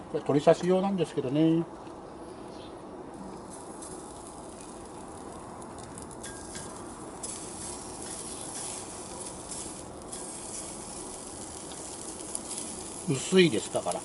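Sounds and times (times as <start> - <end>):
chicken sizzling in skillet: 3.2 - 14.0.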